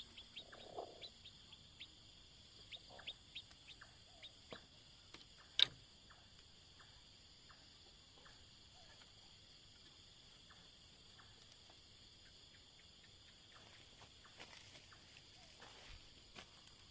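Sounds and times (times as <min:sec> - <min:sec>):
chorus of night insects: 0:00.0 - 0:16.9
faint ticks: 0:08.2 - 0:15.2.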